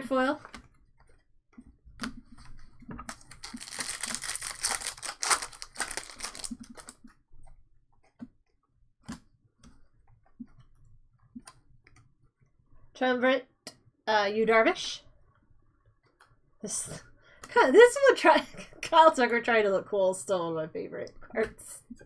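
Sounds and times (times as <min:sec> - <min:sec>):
foil wrapper tearing and crinkling: 0:03.1 - 0:07.0.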